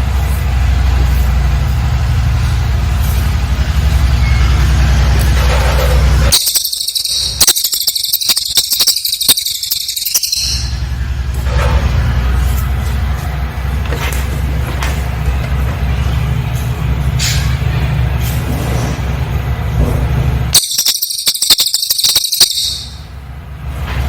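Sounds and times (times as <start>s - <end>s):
songbird chattering trill: 6.3s - 10.9s, 20.6s - 23.0s.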